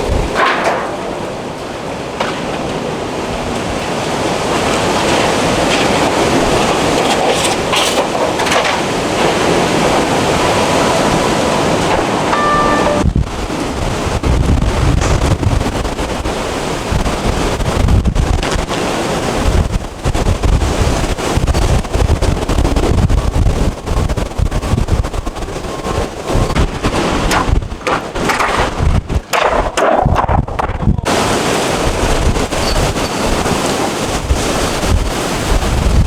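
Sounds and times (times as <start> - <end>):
wind roaring and buffeting: 0.0 - 36.0
sharp bangs and clatter: 0.1 - 2.8.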